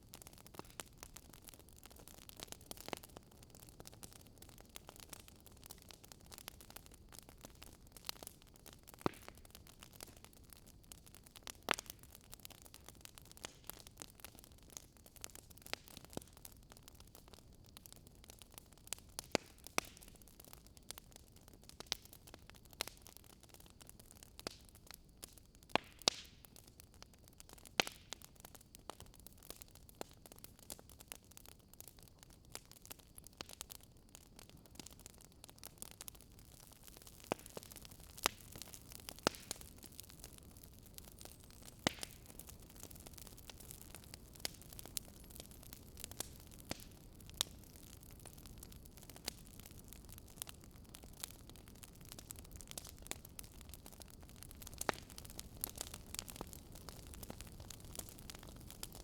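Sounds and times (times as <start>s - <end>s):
soft steady hiss: 0.0s - 59.0s
wood fire crackling: 0.0s - 59.0s.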